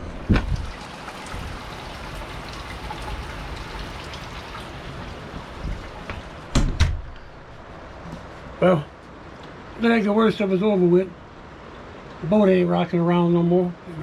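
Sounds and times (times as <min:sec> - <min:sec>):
steady rain: 0:00.0 - 0:06.6.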